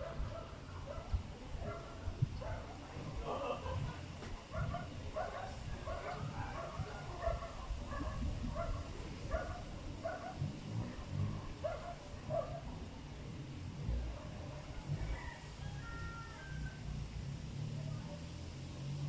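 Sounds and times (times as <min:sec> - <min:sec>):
dog barking: 0:00.0 - 0:03.9, 0:04.5 - 0:12.8
wind rumbling on microphone: 0:00.0 - 0:19.0.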